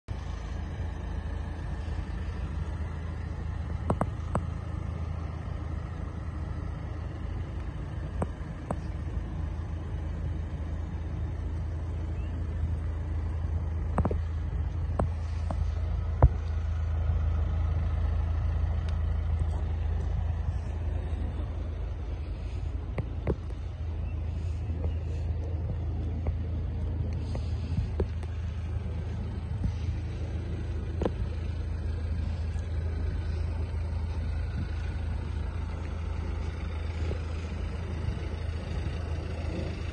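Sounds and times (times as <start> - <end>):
diesel engine idling: 0.0 - 39.9
sharp clicks and knocks: 13.9 - 14.2.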